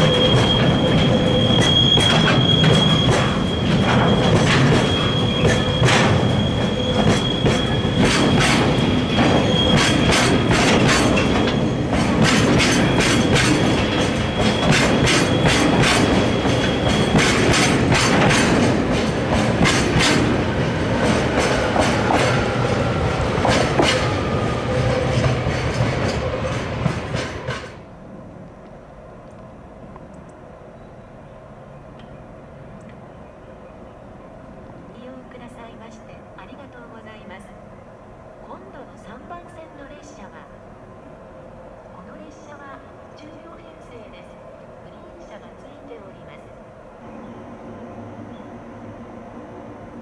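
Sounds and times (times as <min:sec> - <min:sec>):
high wheel squeal: 0:00.0 - 0:11.8, 0:12.7 - 0:17.6
wheels clacking over rail joints: 0:00.0 - 0:27.8.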